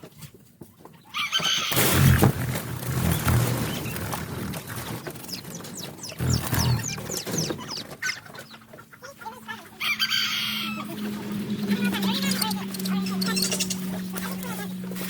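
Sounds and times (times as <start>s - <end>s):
chickens clucking and calling: 0.1s - 1.8s, 3.0s - 15.0s
harsh chicken squawk: 1.1s - 1.9s, 6.2s - 14.0s.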